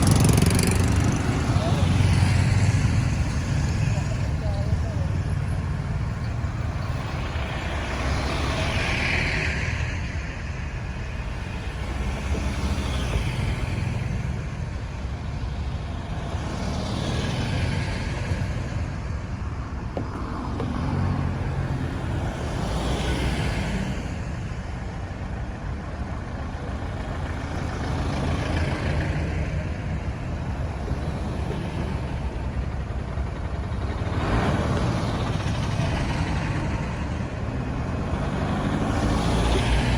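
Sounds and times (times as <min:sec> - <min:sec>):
vehicle passing close: 0:00.0 - 0:09.4
traffic rumble: 0:00.0 - 0:39.9.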